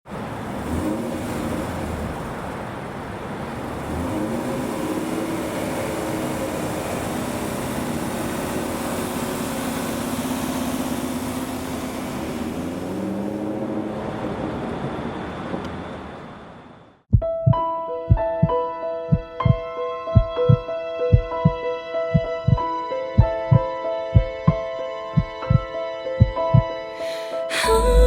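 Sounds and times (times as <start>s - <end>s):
car engine running: 0.1s - 17.0s.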